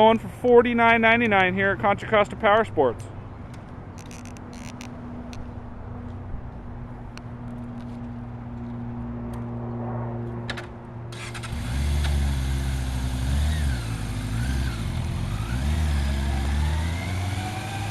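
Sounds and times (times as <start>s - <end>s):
motorcycle engine idling and revving: 4.0s - 17.9s.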